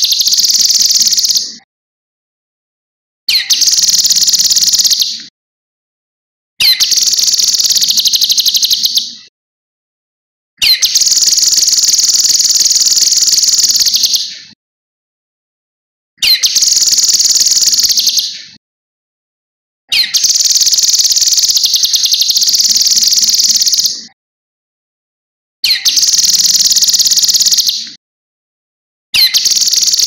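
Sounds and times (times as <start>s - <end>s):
bird high-pitched trilling song: 0.0s - 1.6s, 3.3s - 5.3s, 6.6s - 9.3s, 10.6s - 14.6s, 16.2s - 18.6s, 19.9s - 24.2s, 25.6s - 28.0s, 29.2s - 30.0s.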